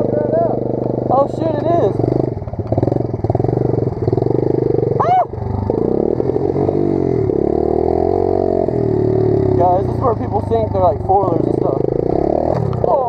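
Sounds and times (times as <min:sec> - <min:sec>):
pit bike engine revving: 0:00.0 - 0:13.0
person shouting: 0:05.0 - 0:05.4.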